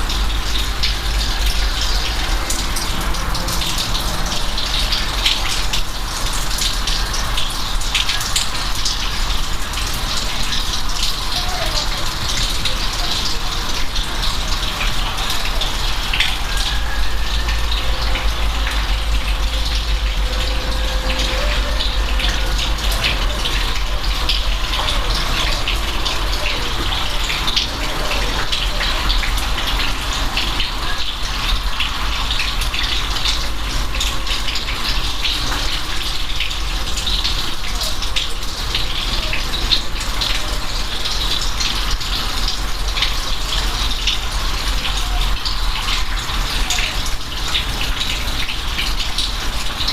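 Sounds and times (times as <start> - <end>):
heavy rain: 0.0 - 49.9
raindrops ticking sharply: 0.0 - 49.9
low rumble: 17.4 - 24.7.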